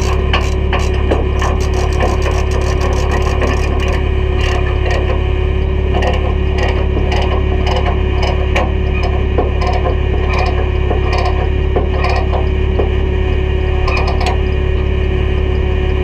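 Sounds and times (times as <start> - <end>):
metallic clanks and knocks: 0.0 - 5.0
heavy diesel engine running: 0.0 - 16.0.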